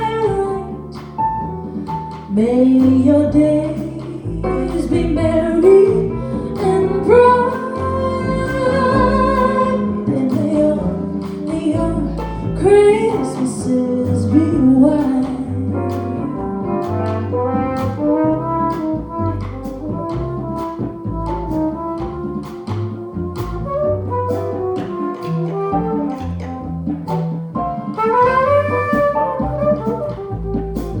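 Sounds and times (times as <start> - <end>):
upright bass: 0.0 - 31.0
jazz horn solo: 4.4 - 31.0.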